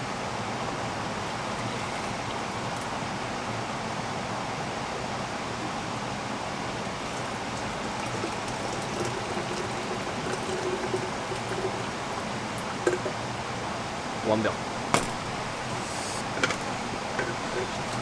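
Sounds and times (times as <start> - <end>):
faint trickling: 0.7 - 3.3, 6.8 - 18.0.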